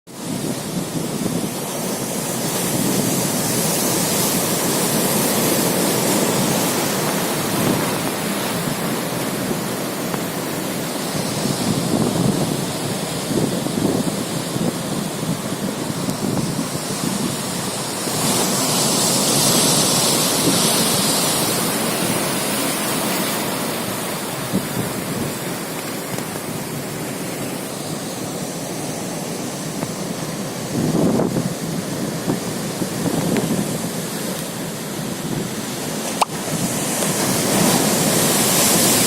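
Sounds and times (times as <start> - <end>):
sea surf breaking: 0.1 - 39.0
wind buffeting microphone: 0.2 - 21.0, 29.1 - 39.0.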